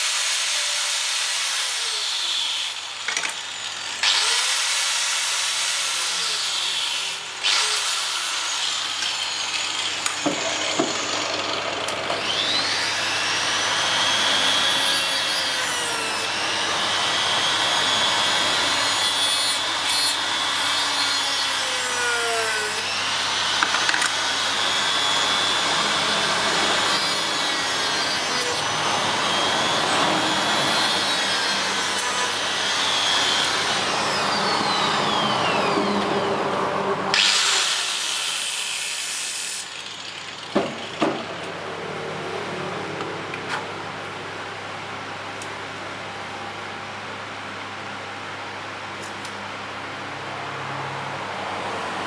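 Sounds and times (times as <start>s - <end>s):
tool cutting bamboo: 0.0s - 12.9s, 37.1s - 41.3s.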